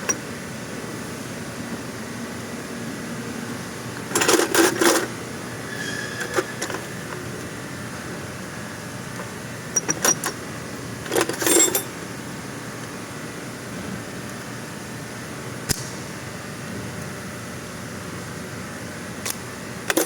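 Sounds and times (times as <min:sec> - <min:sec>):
steady background hum: 0:00.0 - 0:20.0
metal tools clattering: 0:04.1 - 0:05.1, 0:11.0 - 0:11.9.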